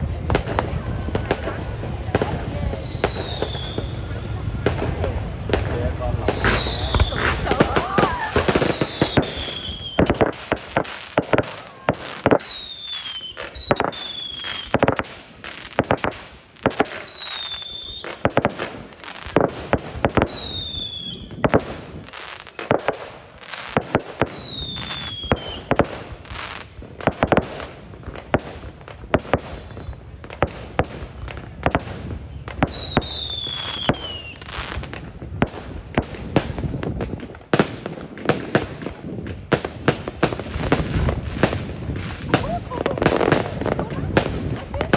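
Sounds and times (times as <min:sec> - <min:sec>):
fireworks bangs and crackles: 0:00.0 - 0:44.9
firework whistles sliding down: 0:02.3 - 0:04.4, 0:06.1 - 0:15.8, 0:16.8 - 0:18.4, 0:20.2 - 0:22.7, 0:23.5 - 0:26.6, 0:31.0 - 0:34.8.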